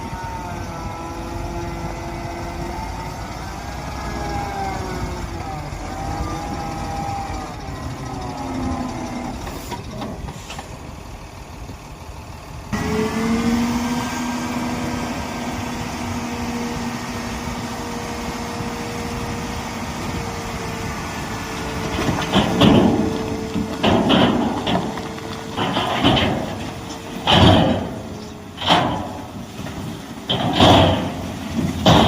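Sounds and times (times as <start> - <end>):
diesel construction machinery running: 0.0 - 32.0
rough noisy bursts: 12.7 - 32.0.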